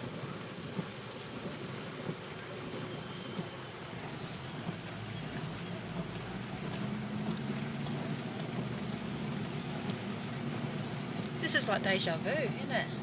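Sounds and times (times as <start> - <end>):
water washing: 0.0 - 13.0
car engine hum: 3.4 - 13.0.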